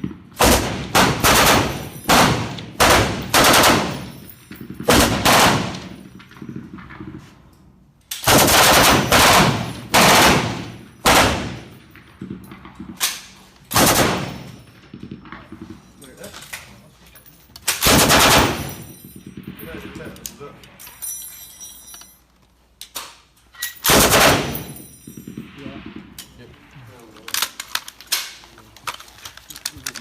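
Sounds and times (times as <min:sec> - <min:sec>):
machine gun bursts: 0:00.4 - 0:04.1, 0:08.3 - 0:11.6, 0:13.7 - 0:14.4, 0:17.8 - 0:18.8, 0:23.8 - 0:24.8.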